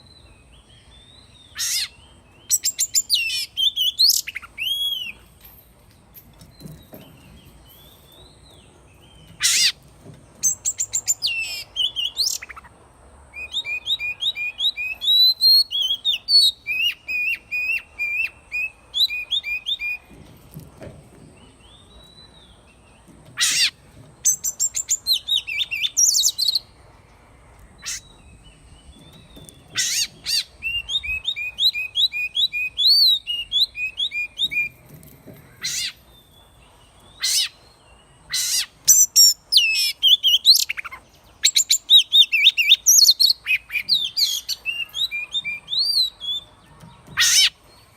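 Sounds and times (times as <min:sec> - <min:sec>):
bird singing whistled notes: 0:00.0 - 0:05.2, 0:13.3 - 0:20.1, 0:24.2 - 0:26.8, 0:27.8 - 0:34.8, 0:38.3 - 0:47.9.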